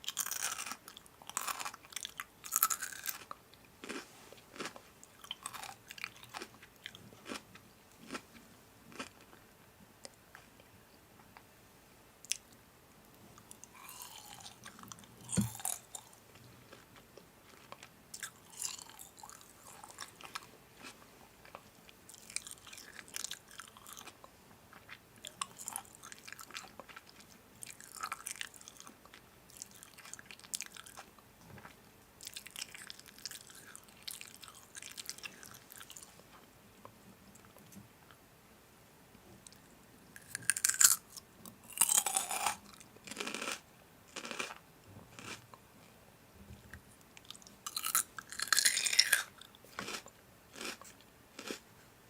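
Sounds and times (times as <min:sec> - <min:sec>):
crisp food crunching: 0:00.0 - 0:08.3, 0:08.9 - 0:09.4, 0:13.6 - 0:36.1, 0:40.2 - 0:41.1, 0:41.7 - 0:44.6, 0:45.2 - 0:45.4, 0:47.2 - 0:51.6.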